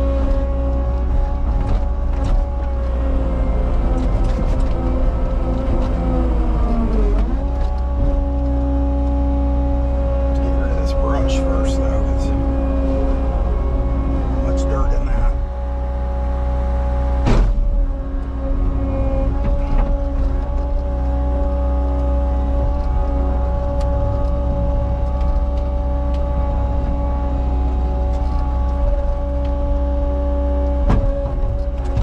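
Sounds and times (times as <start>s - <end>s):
diesel engine running: 0.0s - 32.0s
high whine: 10.4s - 15.6s.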